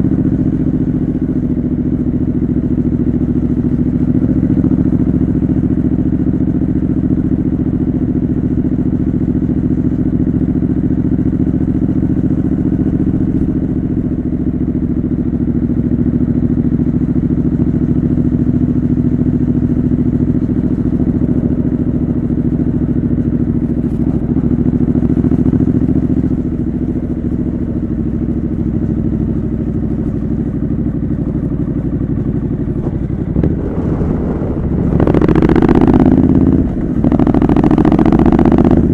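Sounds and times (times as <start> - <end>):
motorcycle engine running: 0.0 - 38.9
wind noise on microphone: 32.7 - 38.9.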